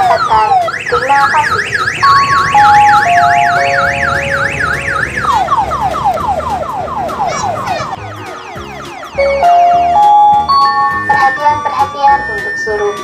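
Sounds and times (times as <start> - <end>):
electronic siren warbling: 0.0 - 13.0
held tones stepping down: 0.9 - 6.8.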